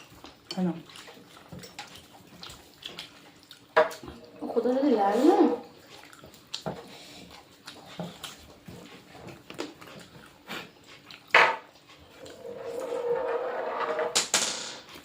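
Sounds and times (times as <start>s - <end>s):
dishes and utensils clattering: 1.5s - 2.0s.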